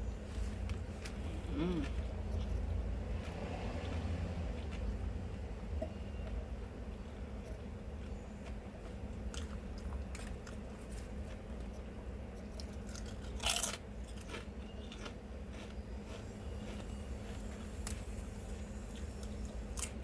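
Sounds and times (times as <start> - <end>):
steady low hum: 0.0 - 20.0
person chewing food: 0.3 - 20.0
food crunch: 7.0 - 20.0.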